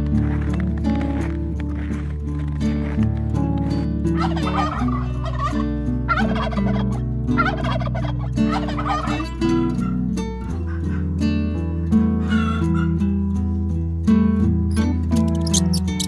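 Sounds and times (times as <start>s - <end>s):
background music: 0.0s - 14.0s, 14.6s - 16.0s
turkey gobbling: 4.3s - 5.5s, 7.4s - 9.3s.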